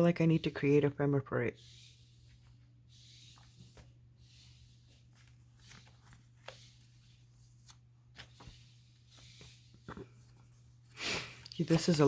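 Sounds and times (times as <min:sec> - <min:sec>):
paper rustling and clicking: 0:05.0 - 0:08.5, 0:11.3 - 0:12.0.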